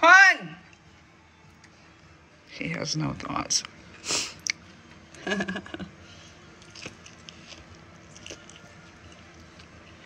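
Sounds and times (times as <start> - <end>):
person chewing food: 4.4 - 4.6, 6.4 - 10.0.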